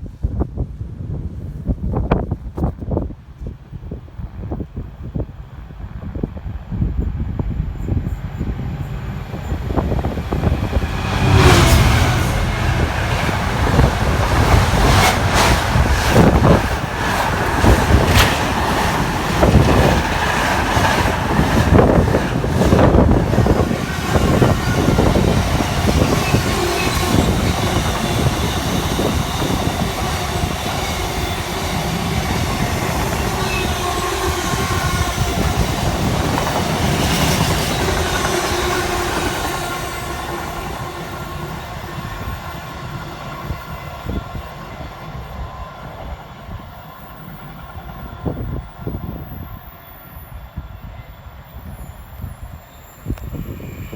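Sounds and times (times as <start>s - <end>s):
train rumble: 0.0s - 53.9s
train wheels clattering: 9.3s - 42.5s.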